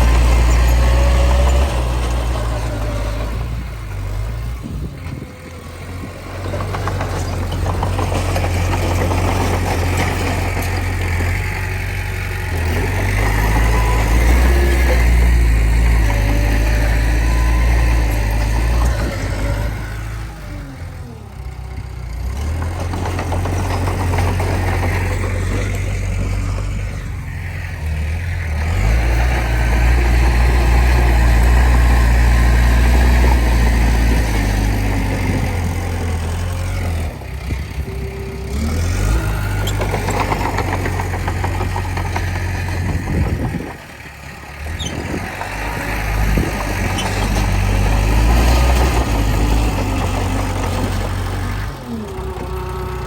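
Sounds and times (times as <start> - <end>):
bulldozer knocks: 0.0 - 11.9, 22.3 - 27.1, 28.6 - 53.0
bulldozer diesel engine working: 0.0 - 53.0.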